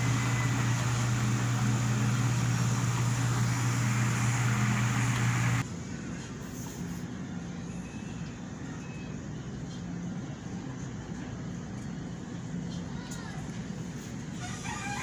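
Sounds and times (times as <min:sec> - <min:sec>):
electric fan running: 0:00.0 - 0:06.3.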